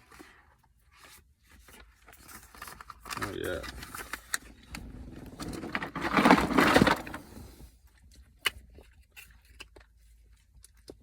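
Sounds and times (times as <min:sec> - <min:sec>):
loud rustle: 0:05.4 - 0:07.6.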